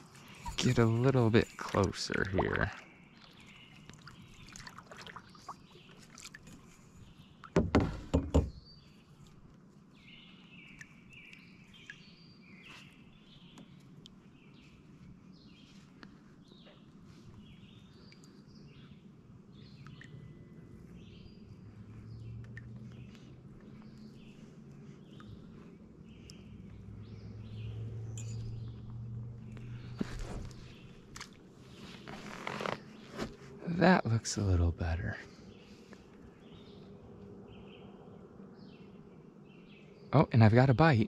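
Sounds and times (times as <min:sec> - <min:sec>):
small birds chirping: 0:00.0 - 0:41.0
loud knocks: 0:07.6 - 0:08.6.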